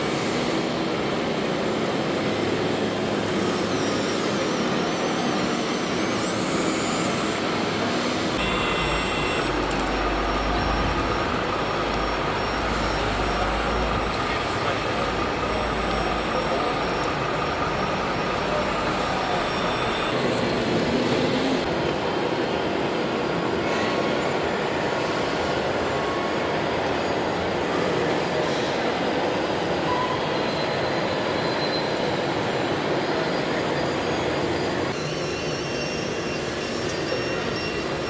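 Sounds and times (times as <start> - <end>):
faint steady tones: 8.4 - 21.7.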